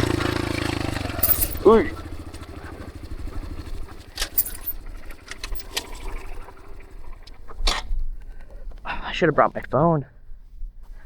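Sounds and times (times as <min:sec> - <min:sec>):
dirt bike engine idling: 0:00.0 - 0:04.2.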